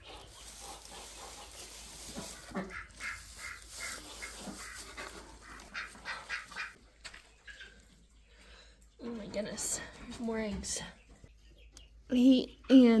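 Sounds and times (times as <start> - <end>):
ducks quacking: 0.0 - 6.8.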